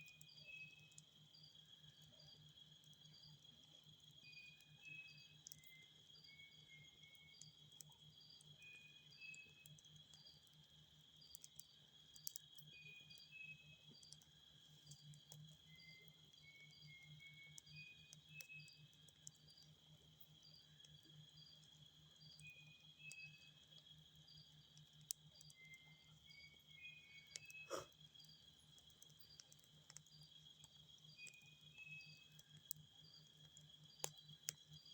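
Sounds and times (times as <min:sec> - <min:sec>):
faint clicks: 0:11.2 - 0:12.7, 0:13.9 - 0:15.6, 0:27.3 - 0:31.4, 0:32.3 - 0:34.7.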